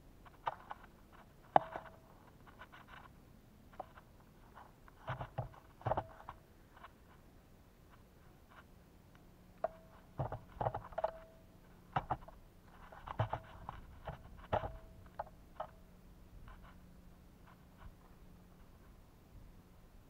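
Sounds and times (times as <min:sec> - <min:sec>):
birds pecking on feeder: 0:09.6 - 0:16.8.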